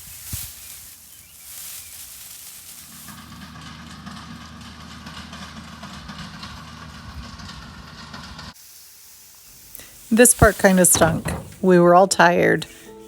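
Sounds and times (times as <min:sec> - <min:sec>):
hissing rustling noise: 0:00.0 - 0:03.5, 0:08.5 - 0:13.0
engine running steadily: 0:02.9 - 0:08.6.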